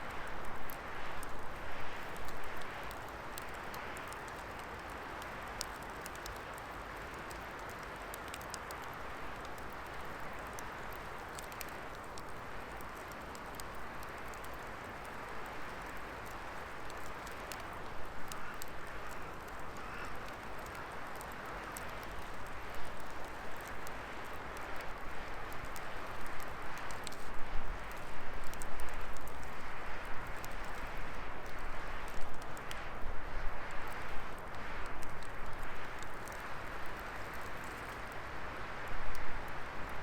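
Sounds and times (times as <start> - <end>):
wood fire hissing and crackling: 0.0 - 40.0.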